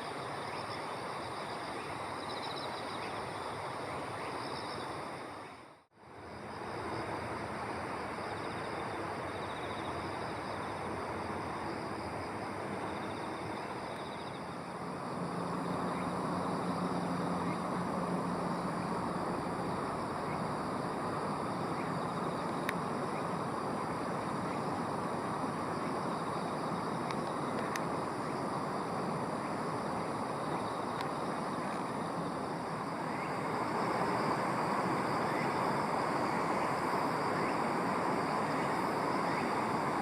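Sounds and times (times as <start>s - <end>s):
insects trilling: 0.0s - 40.0s
rushing background noise: 8.7s - 40.0s.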